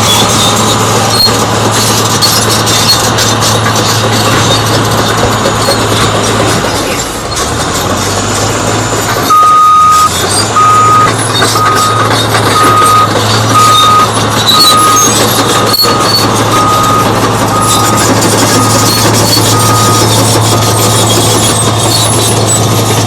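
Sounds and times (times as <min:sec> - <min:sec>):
bulldozer diesel engine running: 0:00.0 - 0:23.0
reverse alarm beeping: 0:09.3 - 0:21.0.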